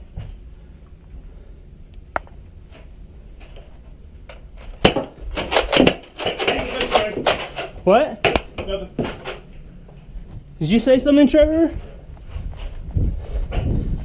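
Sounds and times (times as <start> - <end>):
low steady rumble: 0.0 - 5.4, 7.7 - 14.0
loud knocks and clatter: 4.7 - 9.4.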